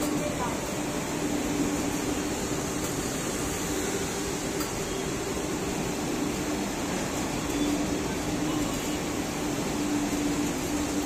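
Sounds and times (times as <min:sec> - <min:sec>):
train passing at speed: 0:00.0 - 0:11.0.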